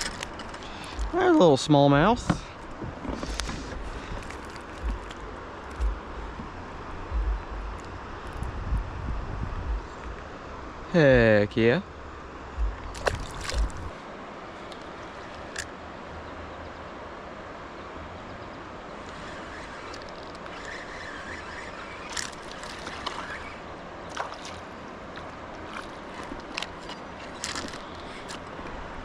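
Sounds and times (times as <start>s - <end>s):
river water rushing: 0.0s - 8.4s, 10.1s - 29.0s
sharp clicks and knocks: 4.2s - 6.5s.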